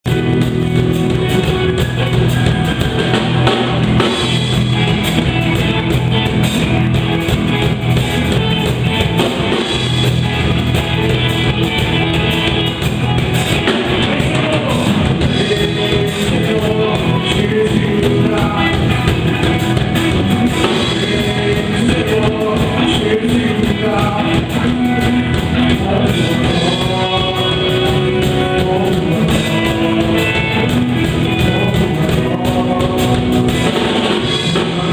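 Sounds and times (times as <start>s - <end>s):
drum kit: 0.0s - 34.9s
electric guitar: 0.0s - 34.9s
worship band playing: 0.0s - 34.9s
person singing: 1.2s - 6.4s, 11.0s - 34.9s.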